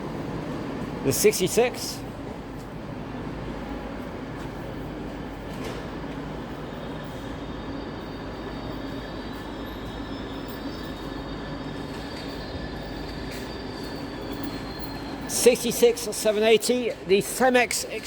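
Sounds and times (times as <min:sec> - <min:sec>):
diesel train rumbling past: 0:00.0 - 0:17.6
faint high squeal: 0:06.4 - 0:15.9.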